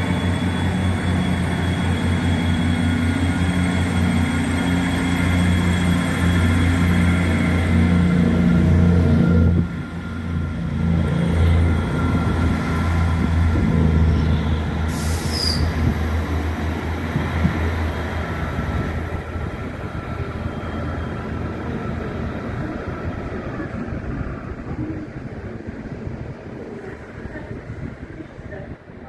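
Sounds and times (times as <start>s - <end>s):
passing train hum: 0.0s - 29.0s
brief high hiss: 14.9s - 15.7s.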